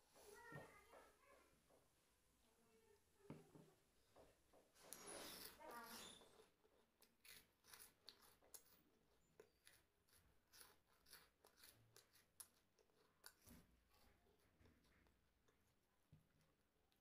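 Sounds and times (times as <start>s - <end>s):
person chewing crunchy food: 6.8s - 13.5s.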